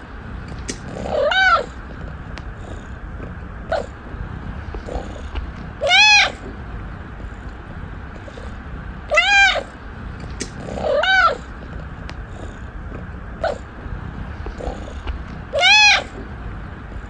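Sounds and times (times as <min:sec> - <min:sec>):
cat meowing: 0:00.8 - 0:01.9, 0:04.6 - 0:06.5, 0:09.1 - 0:09.8, 0:10.5 - 0:11.6, 0:14.4 - 0:16.2.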